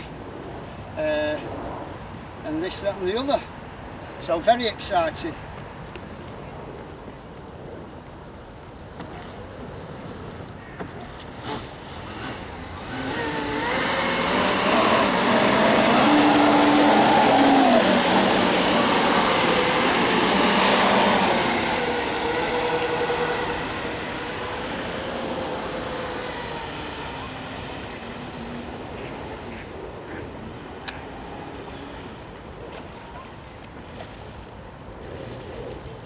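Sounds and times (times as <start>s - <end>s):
electric motor whine: 9.0s - 33.1s
water jet rushing: 11.3s - 33.0s.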